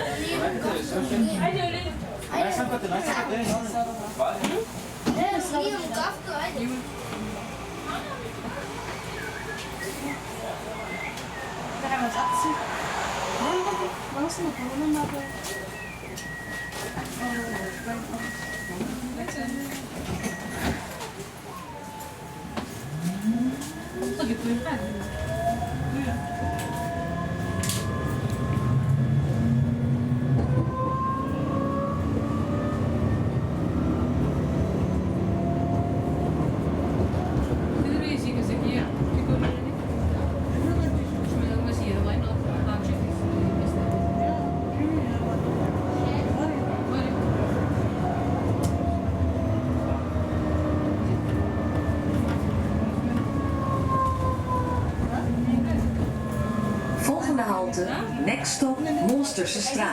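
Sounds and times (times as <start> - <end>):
tram wheels rumbling on rails: 0.0 - 59.9.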